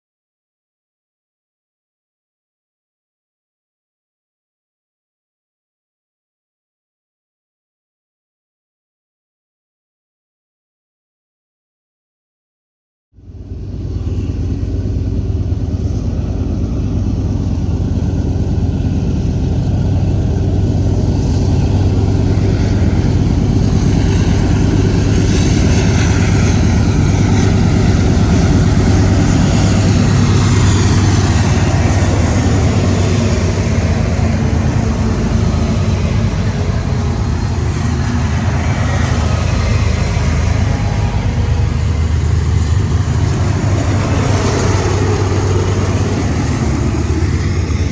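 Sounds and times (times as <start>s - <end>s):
diesel locomotive engine drone: 13.2s - 47.9s.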